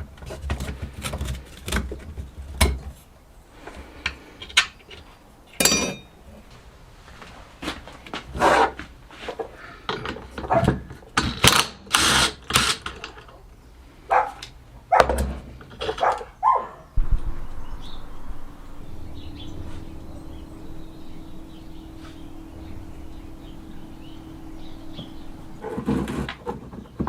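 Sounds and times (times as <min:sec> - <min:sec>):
tools and metal parts clinking: 0:04.4 - 0:06.1, 0:09.9 - 0:13.4
steady low hum: 0:16.9 - 0:27.0.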